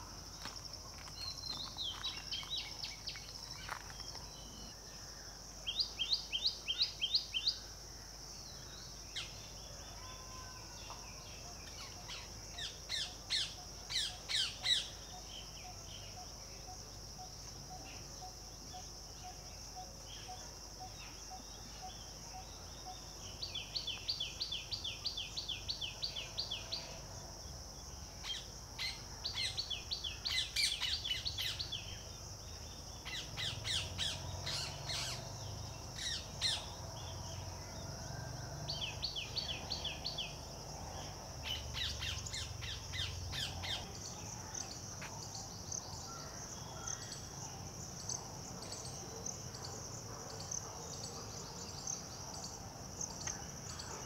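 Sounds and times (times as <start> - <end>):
small birds chirping: 0.0 - 4.8.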